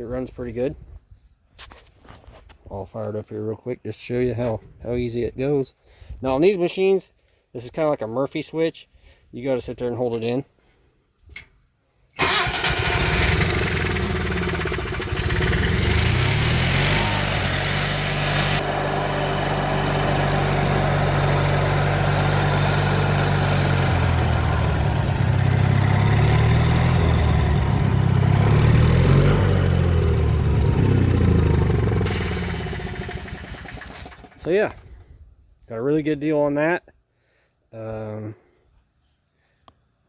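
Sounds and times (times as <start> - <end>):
gasoline engine cranking and running: 12.2 - 34.9.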